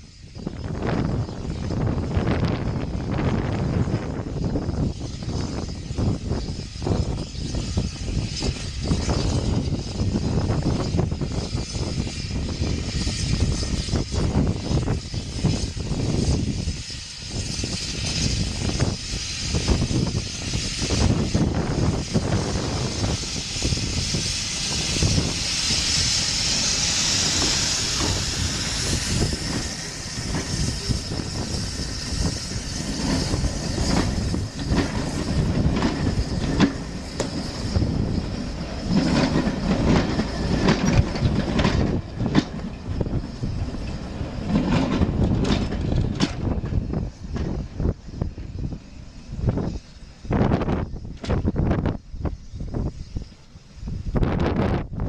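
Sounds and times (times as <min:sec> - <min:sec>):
hiss: 0:00.0 - 0:55.0
train rumbling: 0:00.0 - 0:55.0
wheels knocking and clattering: 0:32.2 - 0:48.2.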